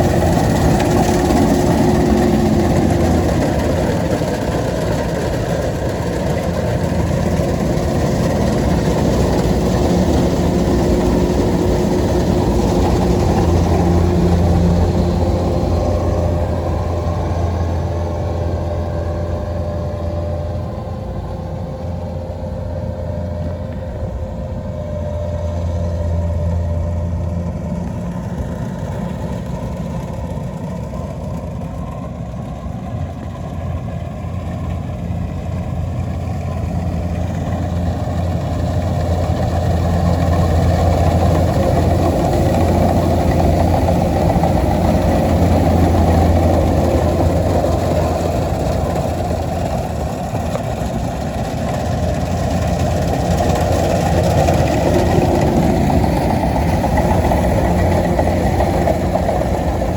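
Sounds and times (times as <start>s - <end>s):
diesel engine running: 0.0s - 59.9s
machinery noise: 0.0s - 59.9s.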